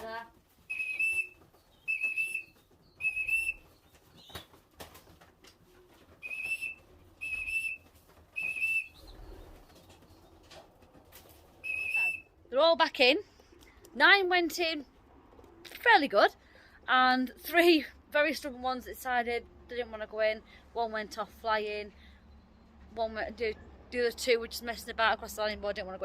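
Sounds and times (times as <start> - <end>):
short whistle blasts: 11.6 - 12.2.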